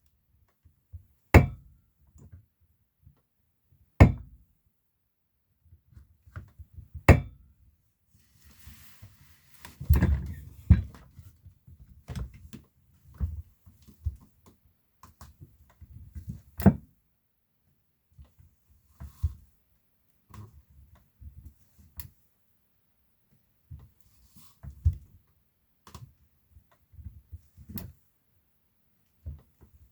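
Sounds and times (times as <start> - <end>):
chair thuds and creaks: 9.7 - 11.2.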